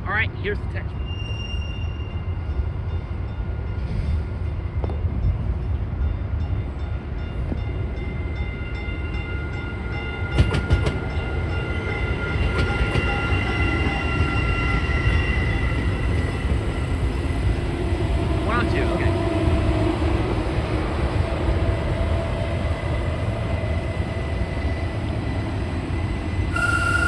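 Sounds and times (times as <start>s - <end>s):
train low rumble: 0.0s - 27.0s
constant high whine: 23.8s - 27.0s.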